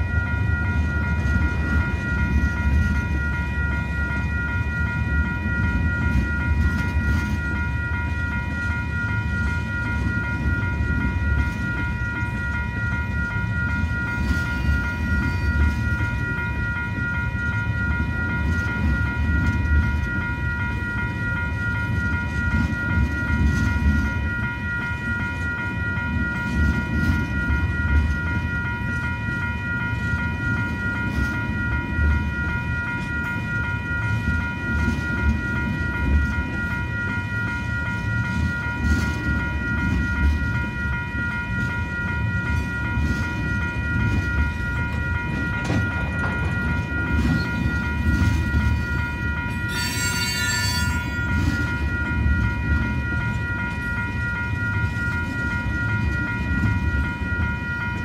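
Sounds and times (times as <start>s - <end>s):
level crossing bell ringing: 0.0s - 58.0s
train wheels rumbling on rail: 0.0s - 58.0s
high-pitched wheel squeal: 49.7s - 51.2s.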